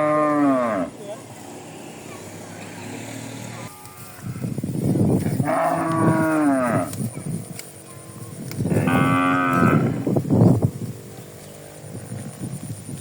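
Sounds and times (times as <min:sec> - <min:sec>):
cattle mooing: 0:00.0 - 0:01.0, 0:05.3 - 0:07.0, 0:08.7 - 0:10.1.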